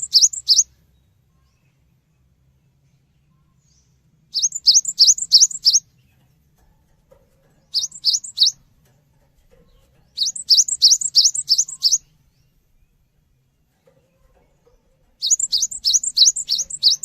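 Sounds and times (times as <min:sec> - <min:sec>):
bird singing high rising notes: 0:00.0 - 0:00.7, 0:04.3 - 0:05.9, 0:07.7 - 0:08.6, 0:10.2 - 0:13.0, 0:15.2 - 0:17.0.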